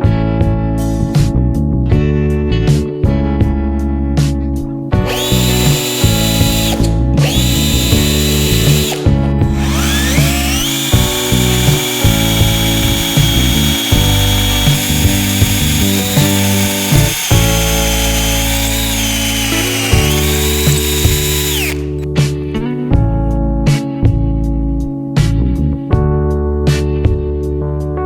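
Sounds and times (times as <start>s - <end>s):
background music: 0.0s - 28.0s
power tool grinding whine: 5.1s - 22.0s.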